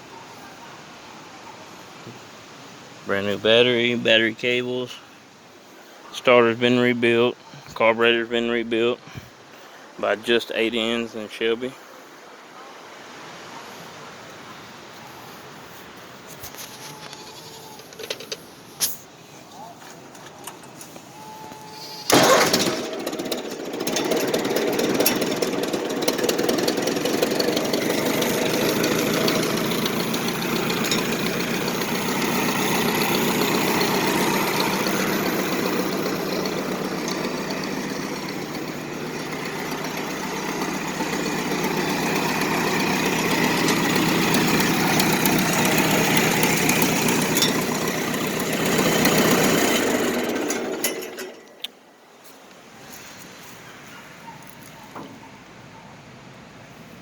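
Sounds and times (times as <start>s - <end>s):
backhoe engine running: 16.6s - 18.6s, 20.0s - 51.9s.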